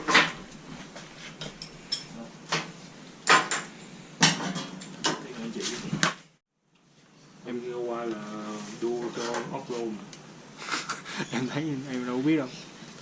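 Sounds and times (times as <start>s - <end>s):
metal clinks and knocks: 1.4s - 5.2s.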